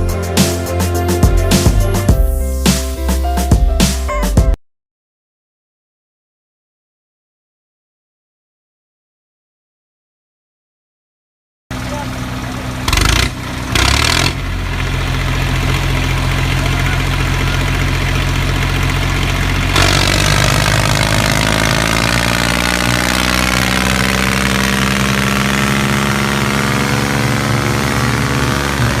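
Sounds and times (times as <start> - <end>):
motor running: 11.8 - 29.0.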